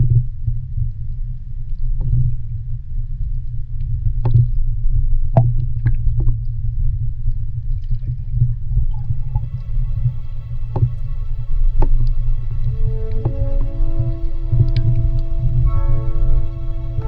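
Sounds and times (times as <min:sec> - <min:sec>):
seawater surging by shore: 0:08.7 - 0:17.0.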